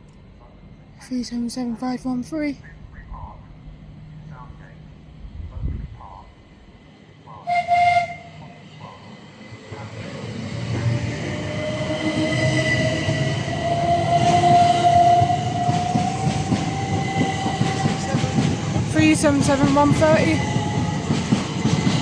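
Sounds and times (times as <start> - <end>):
electric train whine: 0.0 - 22.0
wheel and rail noise: 6.0 - 22.0
train horn toot: 7.4 - 8.6, 11.6 - 19.2.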